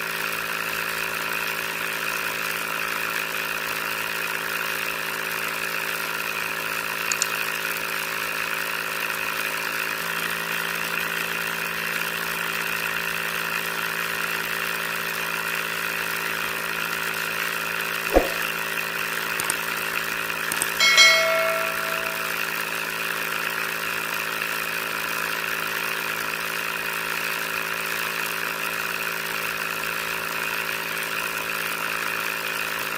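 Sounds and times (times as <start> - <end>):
single knock: 18.2 - 18.4
short metallic ring: 18.2 - 18.5, 20.8 - 22.5.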